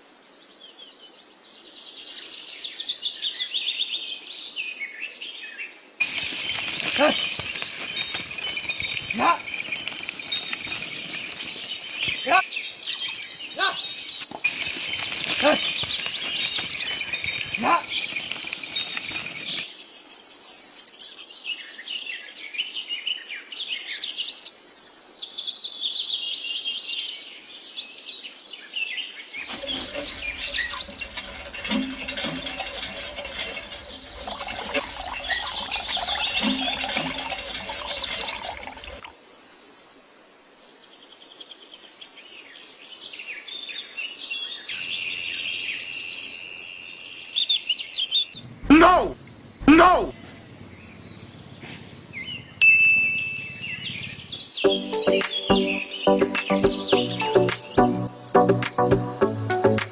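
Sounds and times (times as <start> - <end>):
small birds chirping: 6.0 - 19.8, 29.4 - 39.2, 44.6 - 58.4.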